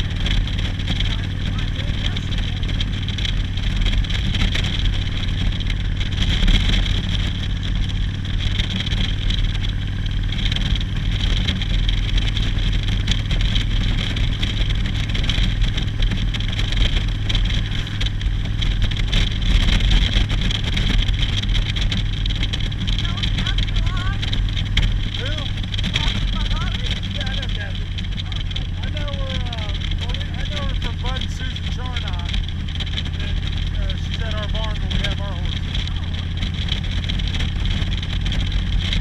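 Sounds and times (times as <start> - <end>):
constant rushing noise: 0.0 - 39.0
motorcycle engine running: 0.0 - 39.0.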